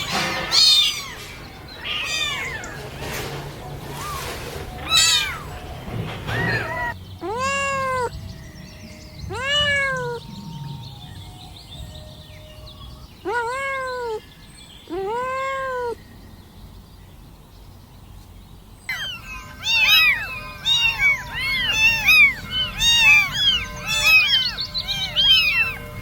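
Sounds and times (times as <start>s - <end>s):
kittens meowing: 0.0s - 3.2s, 3.9s - 8.2s, 9.2s - 11.0s, 12.8s - 14.2s, 14.8s - 16.0s, 18.9s - 26.0s.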